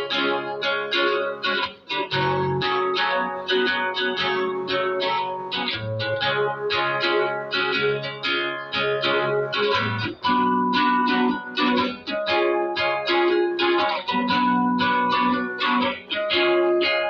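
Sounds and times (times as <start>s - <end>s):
guitar strumming chords: 0.0s - 17.0s.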